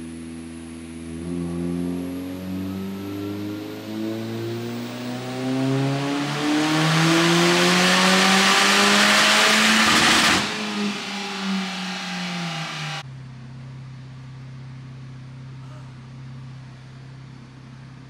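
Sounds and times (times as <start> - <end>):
car engine revving: 0.9 - 13.0.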